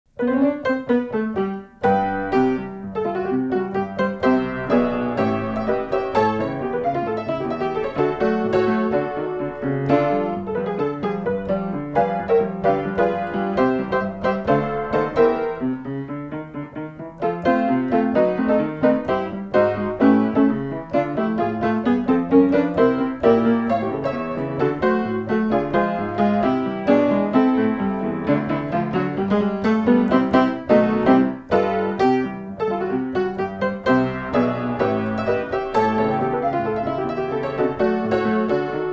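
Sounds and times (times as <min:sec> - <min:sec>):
piano background music: 0:00.1 - 0:38.9.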